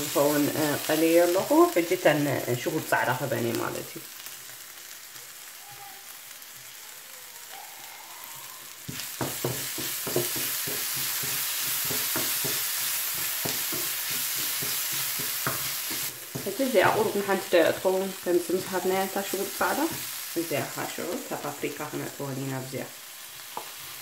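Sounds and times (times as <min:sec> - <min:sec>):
onions sizzling in oil: 0:00.0 - 0:24.0
wooden spatula scraping a pan: 0:08.9 - 0:17.3.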